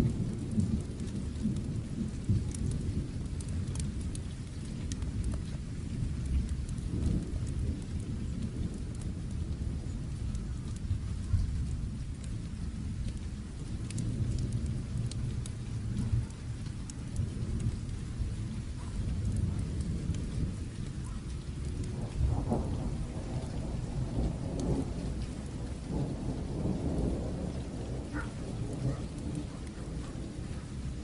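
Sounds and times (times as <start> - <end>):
low rolling thunder: 0.0 - 31.0
steady rain: 0.0 - 31.0
small ticks: 2.3 - 5.6, 13.0 - 17.9, 18.8 - 30.8.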